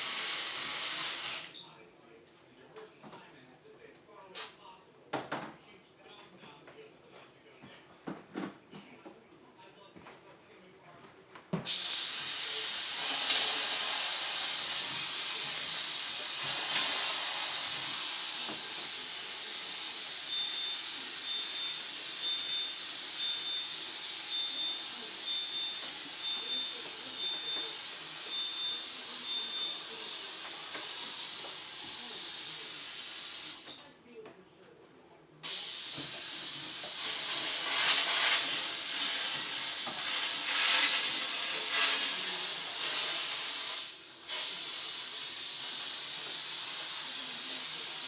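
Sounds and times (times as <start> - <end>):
steam cleaner hissing: 0.0 - 1.5, 11.6 - 33.8, 35.4 - 48.0
faint high beep: 20.3 - 29.8.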